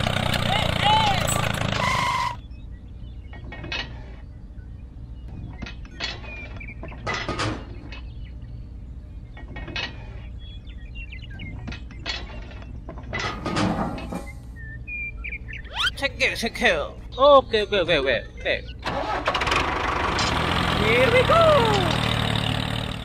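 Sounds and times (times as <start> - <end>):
steady low hum: 2.4 - 18.8.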